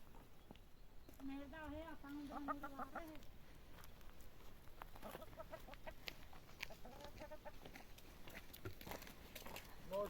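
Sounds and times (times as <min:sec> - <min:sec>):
chicken clucking: 0:02.0 - 0:03.3, 0:04.9 - 0:08.0.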